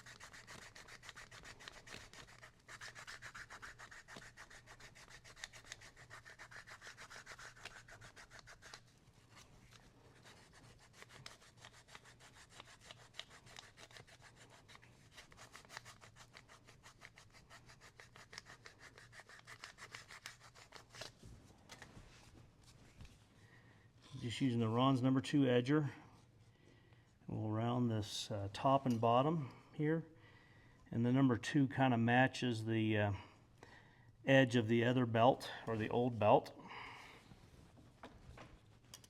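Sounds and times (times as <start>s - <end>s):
hand sanding leather: 0.0s - 21.2s.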